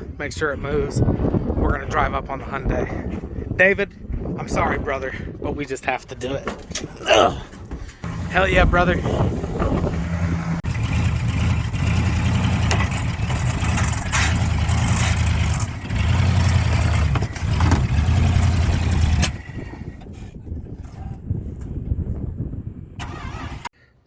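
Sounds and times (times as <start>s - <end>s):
truck engine revving: 8.0s - 23.7s.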